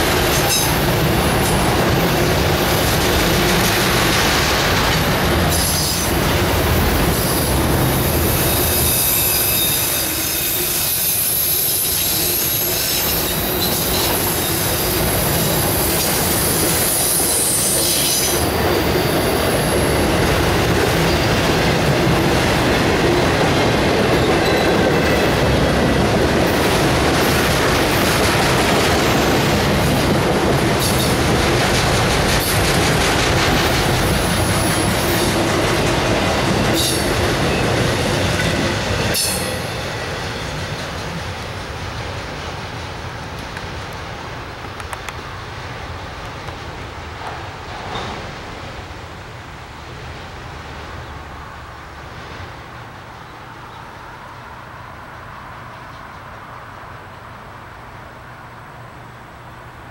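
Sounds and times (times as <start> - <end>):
freight train wheels rumbling: 0.0 - 59.9
high-pitched wheel squeal: 8.3 - 14.6.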